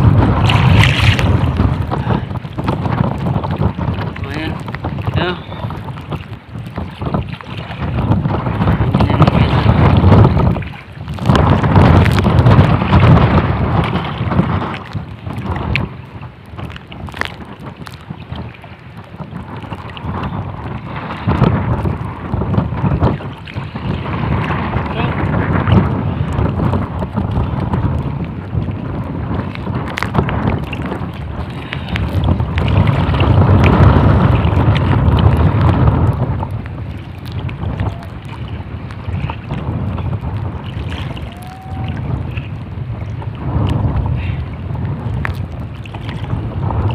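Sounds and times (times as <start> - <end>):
gusting wind buffeting microphone: 0.0 - 46.9.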